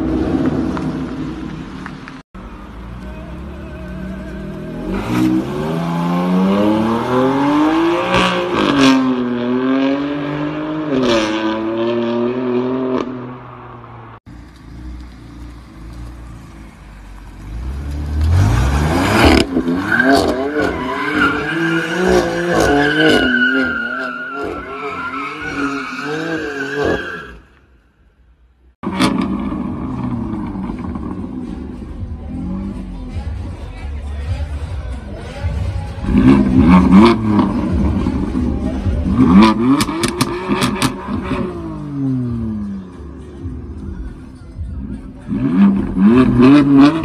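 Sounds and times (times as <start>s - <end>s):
tyres squealing: 19.7s - 27.4s
car engine accelerating hard: 35.8s - 42.7s, 44.8s - 47.0s.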